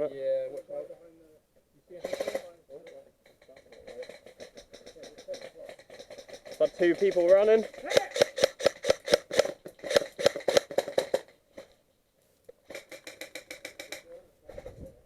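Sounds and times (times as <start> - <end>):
airsoft gun rapid shots: 6.0 - 11.3, 12.7 - 14.0.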